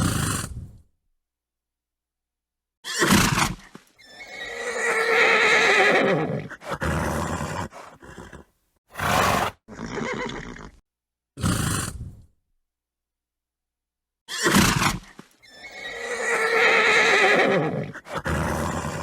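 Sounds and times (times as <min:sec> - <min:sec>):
horse snorts: 0:00.0 - 0:00.8, 0:05.9 - 0:10.8, 0:11.4 - 0:12.3, 0:14.3 - 0:19.0
horse whinny: 0:02.8 - 0:10.8, 0:14.3 - 0:19.0.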